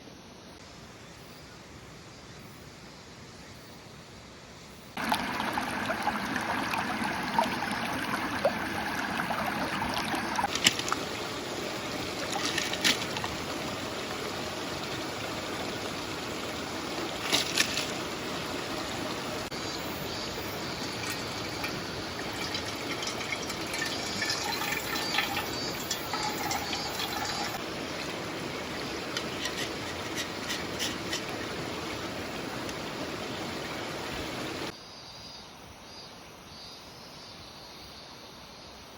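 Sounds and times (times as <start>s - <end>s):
stream trickling: 5.0s - 34.7s.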